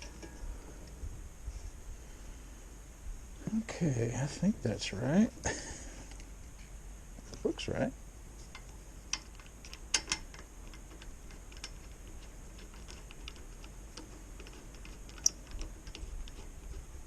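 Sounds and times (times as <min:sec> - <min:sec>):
tools and parts clicking: 0:08.5 - 0:16.8.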